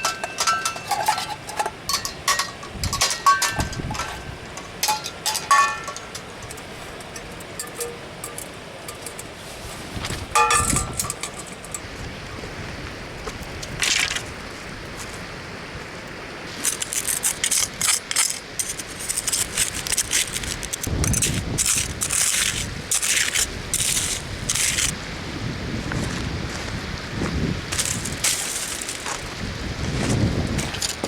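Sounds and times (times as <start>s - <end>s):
hard objects clinking and scraping: 0.0s - 9.4s, 16.5s - 25.0s.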